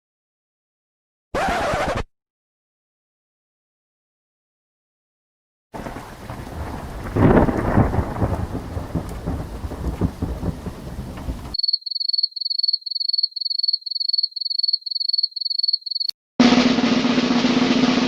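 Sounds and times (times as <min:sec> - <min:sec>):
rain: 0:05.8 - 0:11.6
thunder rumbling: 0:05.8 - 0:11.6
drum roll: 0:16.4 - 0:18.0.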